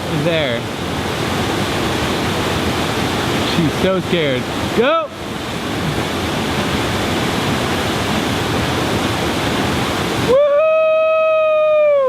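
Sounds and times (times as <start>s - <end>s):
waterfall rushing: 0.0s - 12.0s
person cheering woo: 10.2s - 12.0s.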